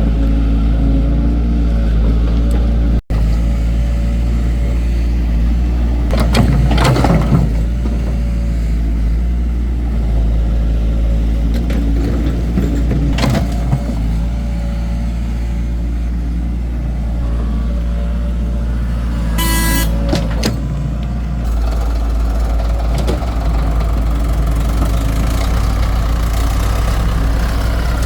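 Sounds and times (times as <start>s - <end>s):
excavator diesel engine running: 0.0s - 28.0s
bucket scraping and clanking: 6.1s - 8.3s.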